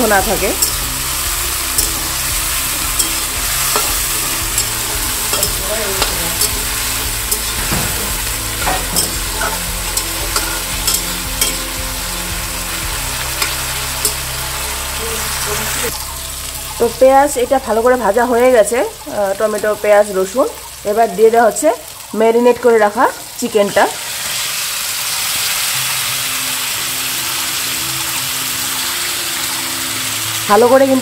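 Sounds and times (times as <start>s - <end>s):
food sizzling in oil: 0.0s - 31.0s
metal spatula scraping a pan: 2.9s - 11.7s, 13.4s - 14.2s.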